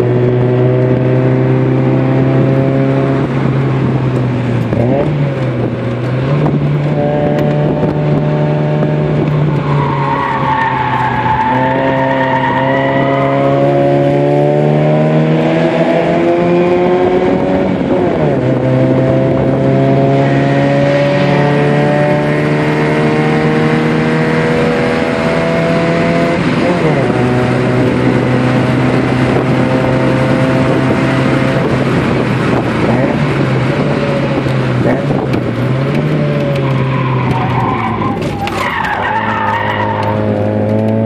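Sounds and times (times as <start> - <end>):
car engine revving under load: 0.0 - 41.0
tyres squealing: 36.6 - 40.4.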